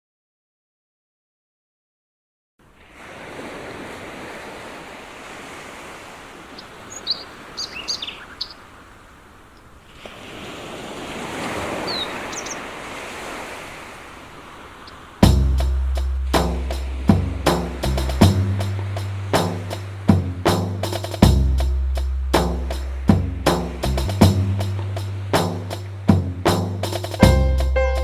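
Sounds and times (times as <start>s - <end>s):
sea waves washing in: 2.6s - 28.0s
short high bird chirps: 11.9s - 12.6s.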